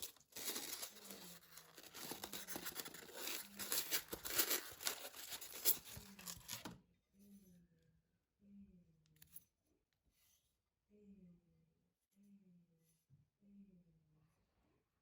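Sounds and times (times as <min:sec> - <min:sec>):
scratchy rustling and scraping: 0:00.0 - 0:06.8.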